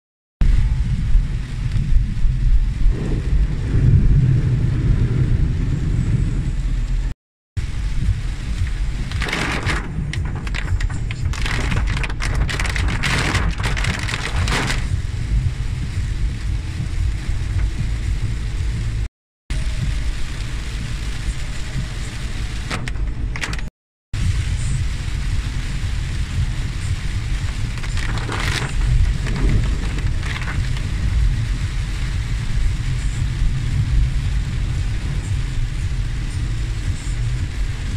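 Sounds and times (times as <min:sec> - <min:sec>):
rain on car: 0:00.4 - 0:37.9
road and engine rumble: 0:00.4 - 0:37.9
water splashing over car: 0:07.8 - 0:19.0, 0:19.9 - 0:37.9.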